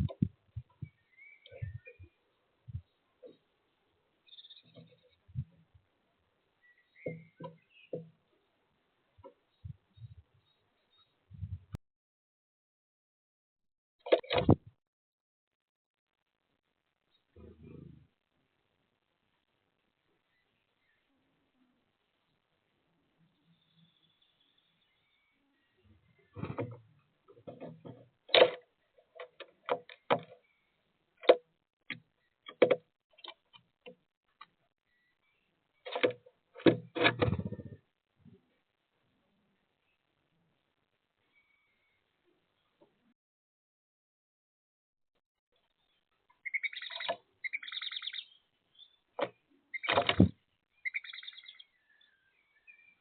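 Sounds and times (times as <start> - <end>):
small birds chattering: 0.0 - 3.5, 4.2 - 5.7, 6.5 - 8.6, 29.9 - 31.0, 45.7 - 53.0.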